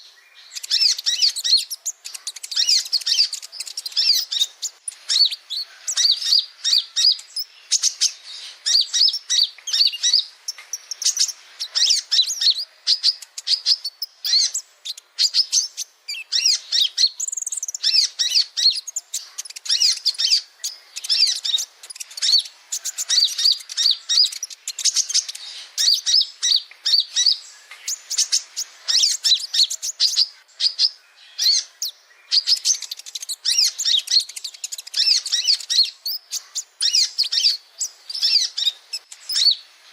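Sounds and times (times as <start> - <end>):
sunbird twittering song: 0.0 - 39.9.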